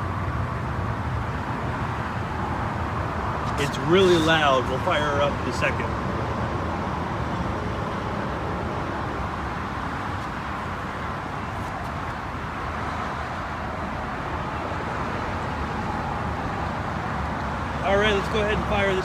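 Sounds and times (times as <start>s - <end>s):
distant road traffic rumble: 0.0s - 19.0s.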